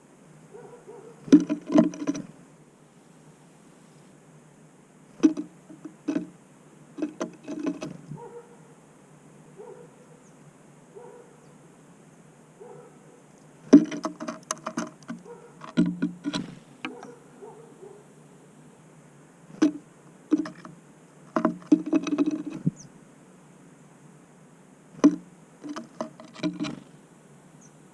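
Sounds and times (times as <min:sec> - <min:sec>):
birds tapping and knocking: 0:01.2 - 0:02.3, 0:05.2 - 0:06.4, 0:07.0 - 0:08.4, 0:13.7 - 0:17.2, 0:19.5 - 0:22.9, 0:25.0 - 0:27.0.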